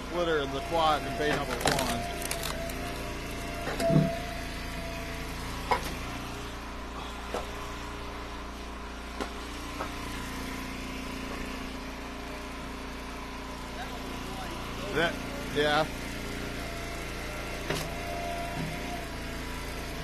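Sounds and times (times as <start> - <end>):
wood splitter engine running: 0.0 - 20.0.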